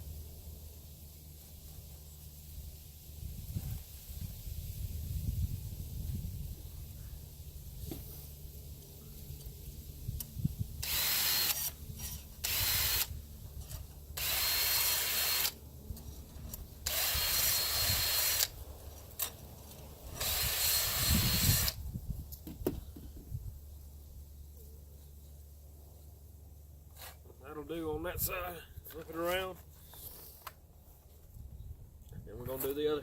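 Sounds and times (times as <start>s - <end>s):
power tool grinding stone whine: 10.8s - 13.1s, 13.7s - 18.5s, 20.1s - 21.7s.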